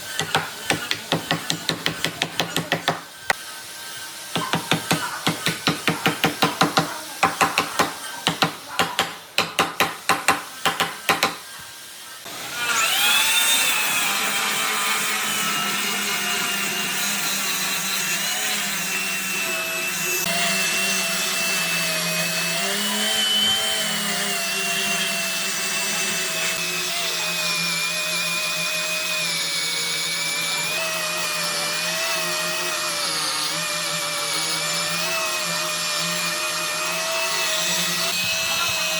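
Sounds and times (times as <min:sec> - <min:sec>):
electric power tool whining: 0:00.0 - 0:38.9
rapid sharp knocks on wood: 0:00.2 - 0:03.0, 0:04.4 - 0:11.4.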